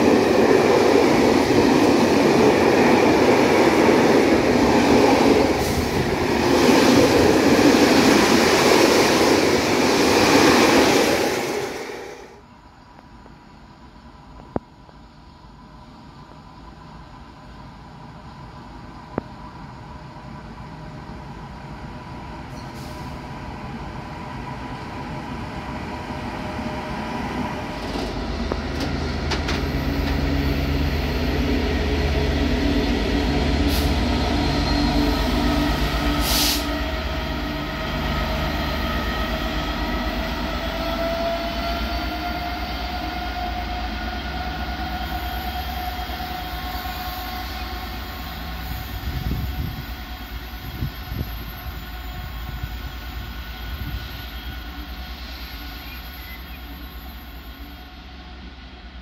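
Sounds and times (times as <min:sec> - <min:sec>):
wagons rumbling on rails: 0:00.0 - 0:12.0, 0:25.3 - 0:59.0
diesel locomotive engine: 0:00.0 - 0:59.0.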